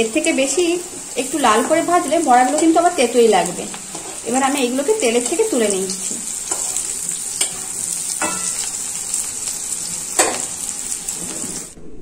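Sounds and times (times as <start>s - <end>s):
fritters sizzling in hot oil: 0.0s - 11.8s
metal spatula clinking on pan: 7.4s - 8.7s.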